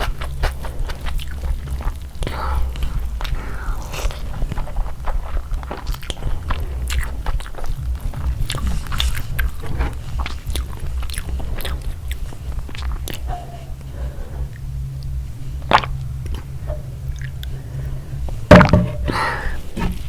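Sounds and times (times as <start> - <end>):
biting and chewing: 0.0 - 20.0
food crunching: 0.0 - 20.0
steady low hum: 0.0 - 20.0.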